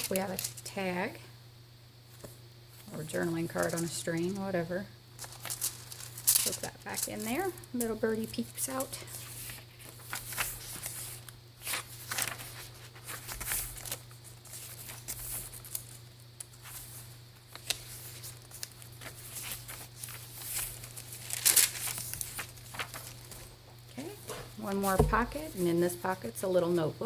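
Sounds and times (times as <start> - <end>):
paper pages rustling: 0.0 - 0.6, 2.1 - 4.4, 5.2 - 23.5
low electrical hum: 0.0 - 27.0.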